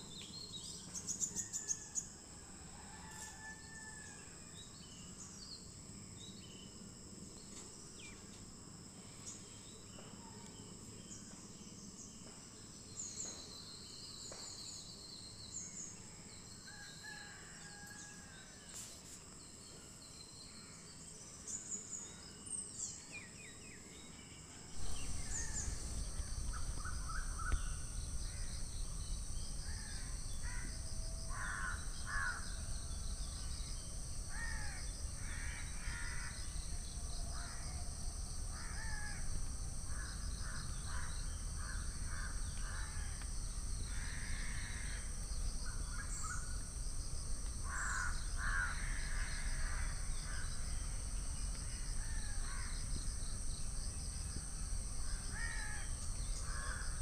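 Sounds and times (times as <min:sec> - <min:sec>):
fast pulsing: 0:24.8 - 0:30.9
low rumble: 0:24.8 - 0:34.2.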